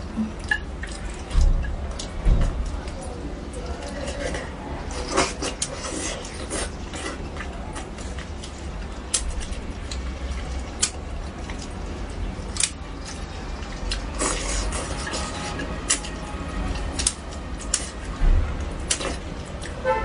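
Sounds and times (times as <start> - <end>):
wet chewing and mouth sounds: 0.0 - 19.8.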